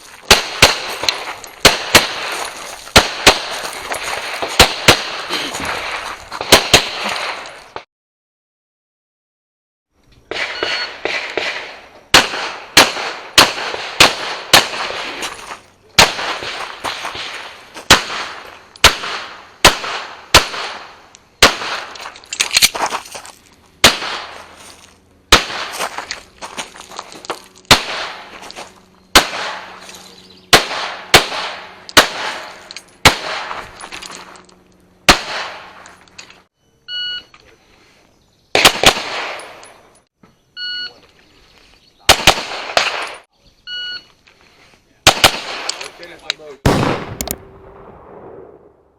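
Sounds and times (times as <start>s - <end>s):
pistol shots ringing: 0.3s - 7.6s, 10.3s - 15.2s, 16.0s - 22.7s, 23.8s - 24.6s, 25.2s - 26.0s, 27.4s - 28.4s, 29.1s - 36.1s, 38.6s - 39.9s, 42.1s - 43.2s, 45.0s - 45.9s, 46.6s - 47.4s
short electronic beep: 36.6s - 37.4s, 40.6s - 41.0s, 43.7s - 44.1s.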